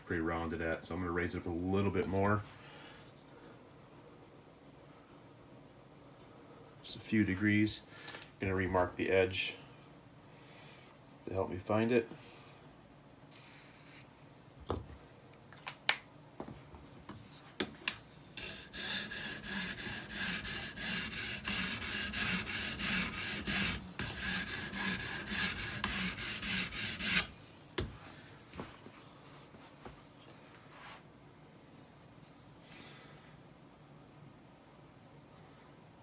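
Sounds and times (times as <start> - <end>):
sharpening stone rasping on knife: 18.4 - 27.3.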